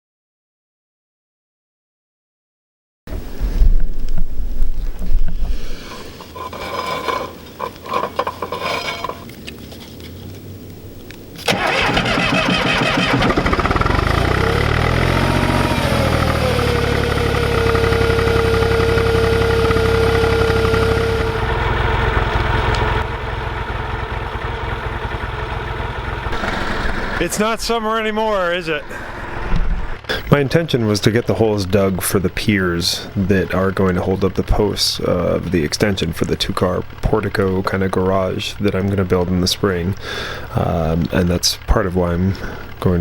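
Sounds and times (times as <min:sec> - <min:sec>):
high engine whine: 0:03.1 - 0:43.0
heavy machine engine revving: 0:11.4 - 0:27.6, 0:28.8 - 0:42.8.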